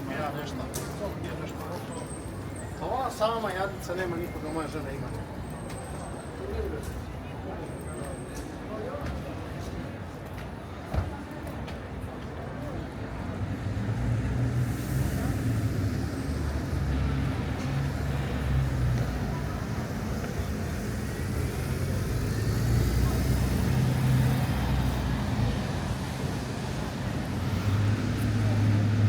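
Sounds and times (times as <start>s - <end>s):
low traffic rumble: 0.0s - 29.0s.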